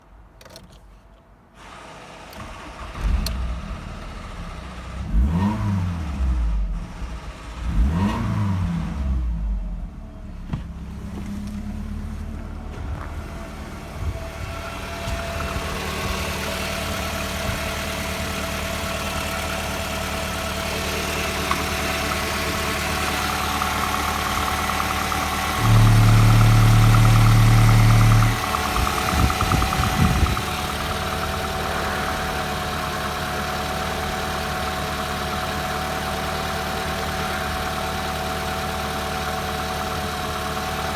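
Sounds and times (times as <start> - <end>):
car engine starting and idling: 1.6 - 40.9
loud steady tone: 22.5 - 31.0.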